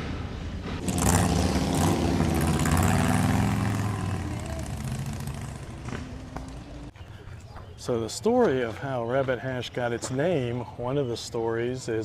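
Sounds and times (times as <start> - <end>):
engine running: 0.6 - 6.9.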